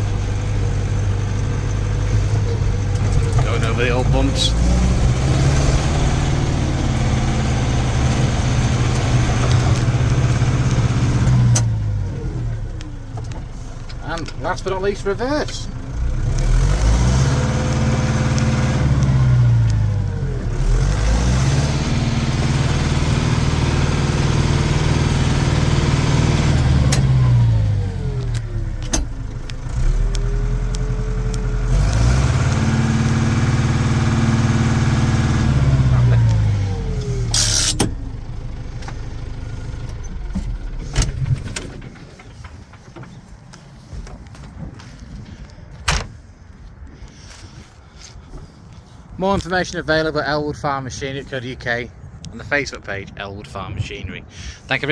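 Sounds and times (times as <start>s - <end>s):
tractor diesel engine revving: 0.0s - 43.6s.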